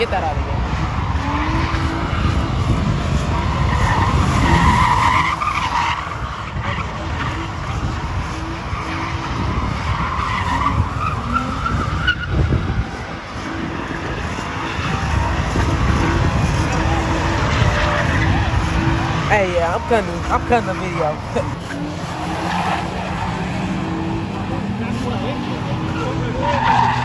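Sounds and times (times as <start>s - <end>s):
car engine running hard: 0.0s - 27.0s
tires squealing: 0.0s - 27.0s.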